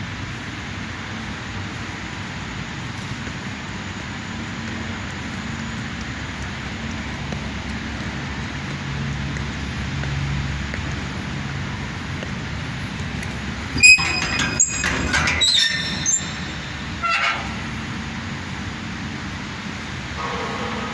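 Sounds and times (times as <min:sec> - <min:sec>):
high-pitched metallic squeal: 0:13.8 - 0:18.5.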